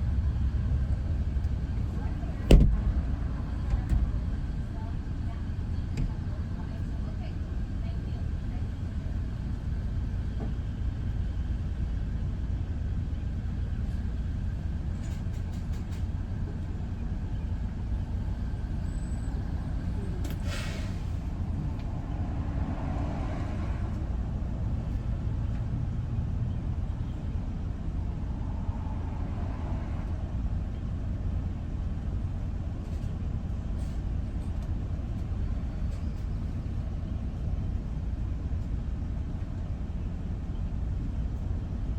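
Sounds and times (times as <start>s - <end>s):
road and engine rumble: 0.0s - 41.9s
brief hiss: 20.2s - 21.2s.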